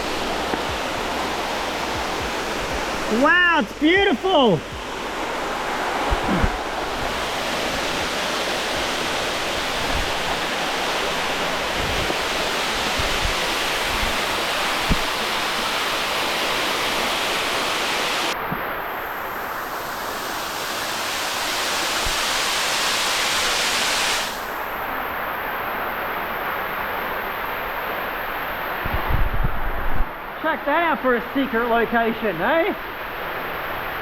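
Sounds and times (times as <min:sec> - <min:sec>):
waterfall rushing: 0:00.0 - 0:25.1.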